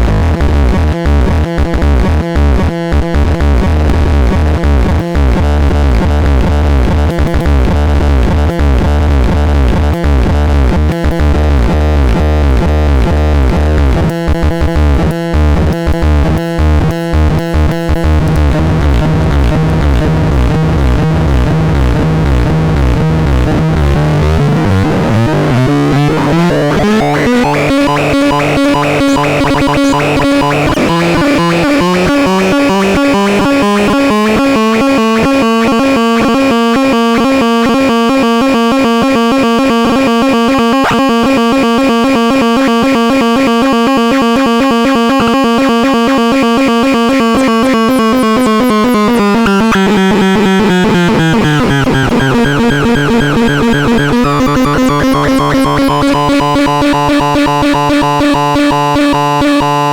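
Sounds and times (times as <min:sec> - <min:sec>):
rhythmic chopped synth tones: 0:22.0 - 0:59.9.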